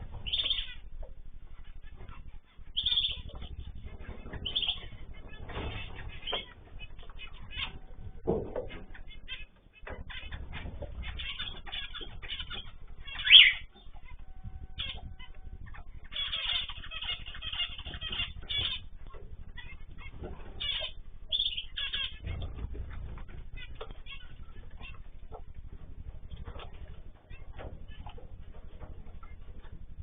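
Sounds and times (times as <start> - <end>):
cage birds chirping: 0.0 - 30.0.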